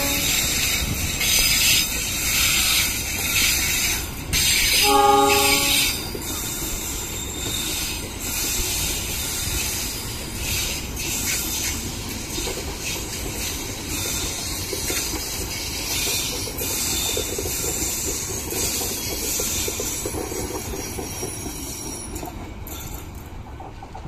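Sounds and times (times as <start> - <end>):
train horn blast: 0.0 - 0.5, 4.7 - 6.0
train wheels rumbling on rail: 0.0 - 24.0
wheels clacking over rail joints: 0.0 - 24.0.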